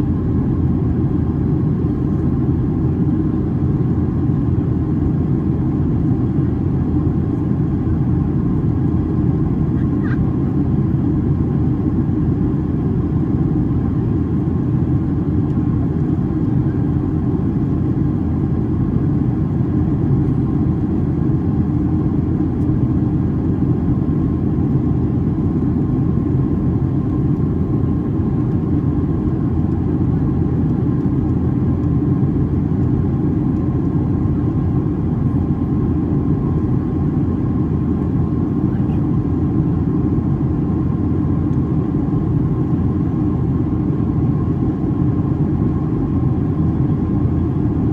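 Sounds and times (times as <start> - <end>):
airliner cabin drone: 0.0 - 47.9.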